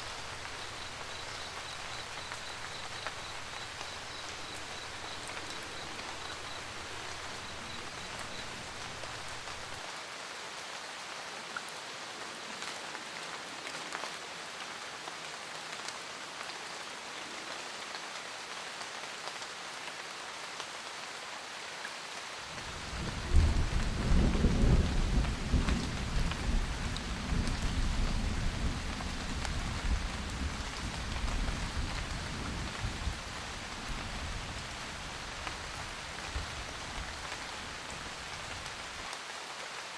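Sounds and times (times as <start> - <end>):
deep rumble of thunder: 0.0 - 9.8, 22.7 - 38.7
steady rain: 0.0 - 39.9.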